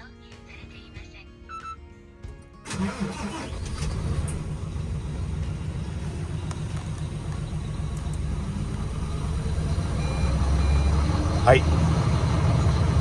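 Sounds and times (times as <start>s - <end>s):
diesel truck engine starting and idling: 2.7s - 13.0s.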